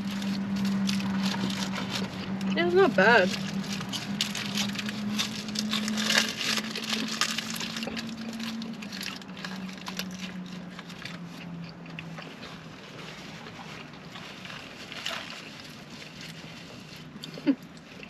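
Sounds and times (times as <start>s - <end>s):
low hum: 0.0s - 18.0s
person chewing food: 0.0s - 18.0s.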